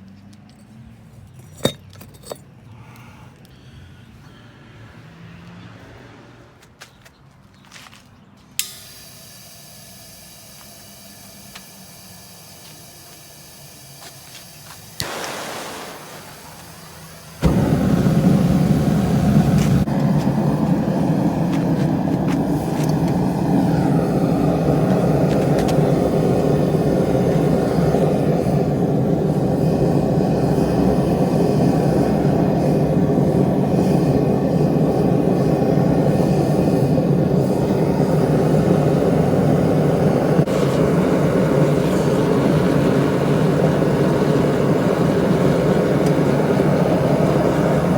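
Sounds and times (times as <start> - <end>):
loud mechanical roar: 16.4 - 47.9.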